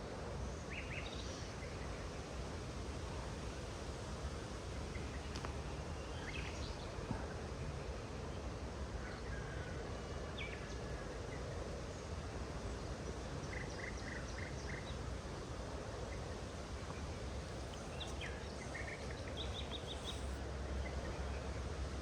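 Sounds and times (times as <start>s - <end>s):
low outdoor rumble: 1.8s - 22.0s
short bird chirps: 19.4s - 20.4s.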